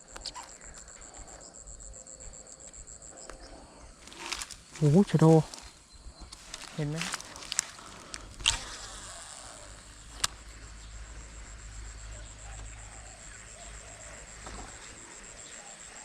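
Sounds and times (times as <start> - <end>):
high-pitched insect trill: 0.0 - 16.0
sharp click: 8.4 - 8.8.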